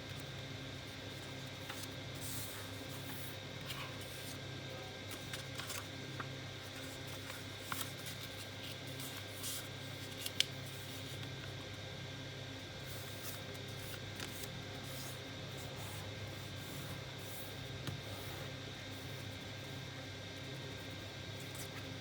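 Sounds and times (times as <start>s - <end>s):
low electrical hum: 0.0s - 22.0s
paper rustling and ticking: 5.1s - 11.1s.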